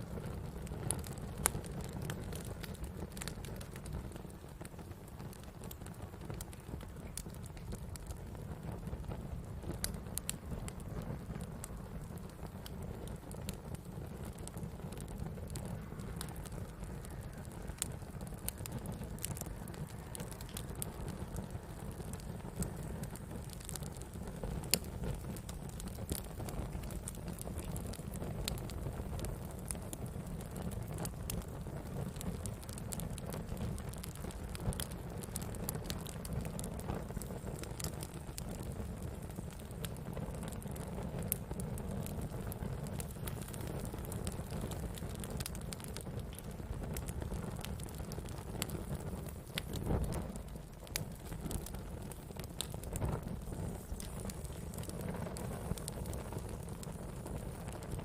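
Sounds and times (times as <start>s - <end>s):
burning wood crackling: 0.0s - 58.0s
fire flames rumbling: 0.0s - 58.0s.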